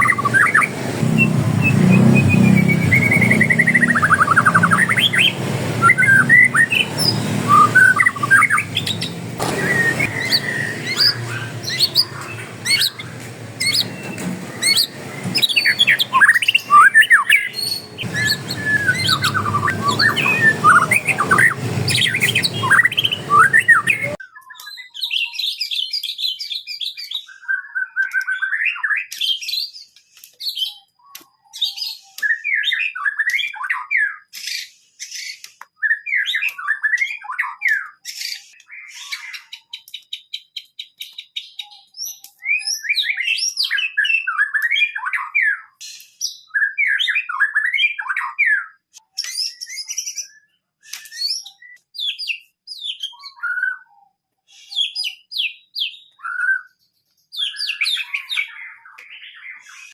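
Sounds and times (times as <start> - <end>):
busy background noise: 0.0 - 24.2
songbirds singing: 0.0 - 27.1, 54.6 - 59.9.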